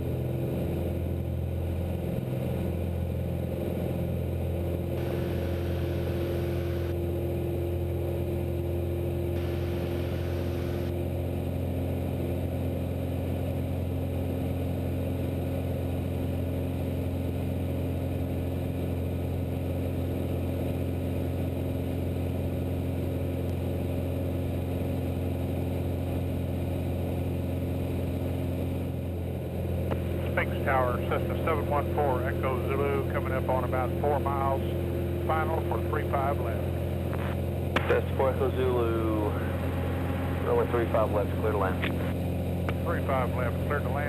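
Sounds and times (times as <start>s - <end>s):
airplane engine droning: 0.0s - 44.0s.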